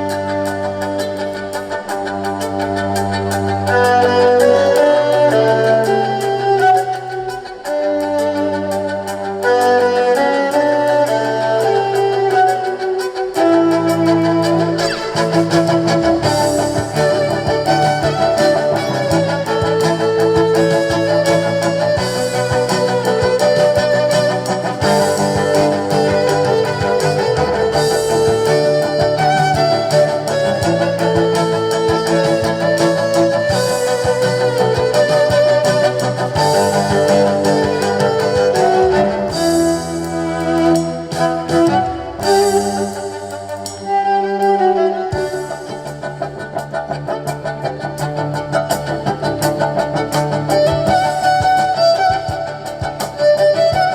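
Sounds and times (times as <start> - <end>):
live band playing instrumental: 0.0 - 53.9
steady bass line: 13.7 - 53.9.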